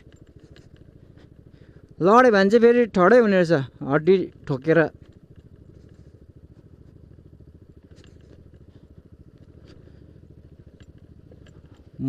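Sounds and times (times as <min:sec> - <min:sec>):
scooter engine pulsing: 0:00.0 - 0:12.0.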